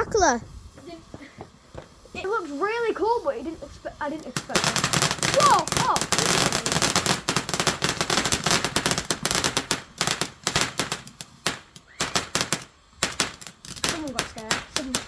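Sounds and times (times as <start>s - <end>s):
fireworks crackling and banging: 0.0s - 15.0s.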